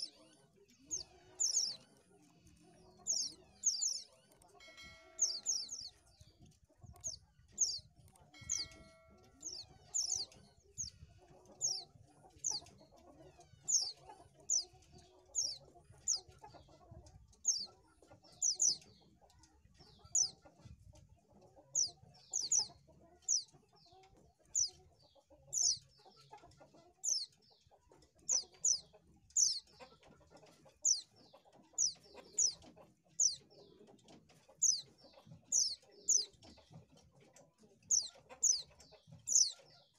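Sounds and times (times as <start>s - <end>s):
bird high downward chirps: 3.1s - 6.1s, 6.9s - 11.0s, 21.8s - 22.7s, 29.4s - 29.6s, 37.9s - 38.7s.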